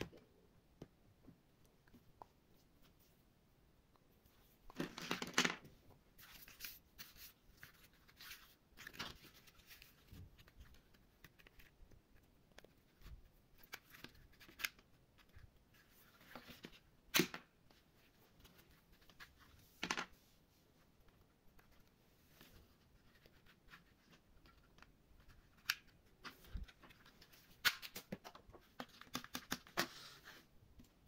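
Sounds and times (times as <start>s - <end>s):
plastic toys clicking and tapping: 27.6s - 29.8s.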